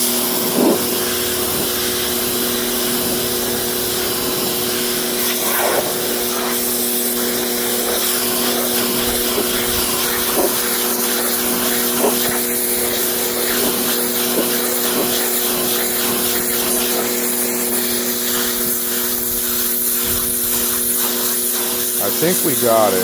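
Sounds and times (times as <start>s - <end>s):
pressure washer motor hum: 0.0s - 23.0s
water jet spraying carpet: 0.0s - 23.0s.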